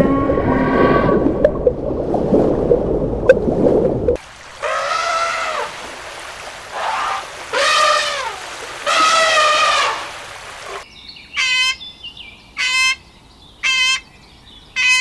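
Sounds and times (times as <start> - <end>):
water splashing: 0.0 - 10.9
animal drawn-out calls: 4.6 - 5.8, 6.7 - 10.8, 14.8 - 15.0.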